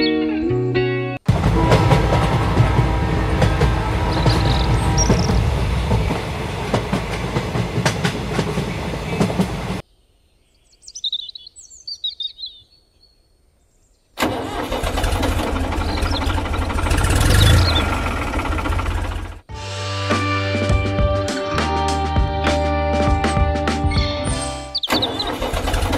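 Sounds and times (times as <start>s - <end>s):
tractor engine rumbling: 1.2s - 9.8s, 14.2s - 19.5s, 24.7s - 25.9s
high chirps: 23.9s - 25.3s.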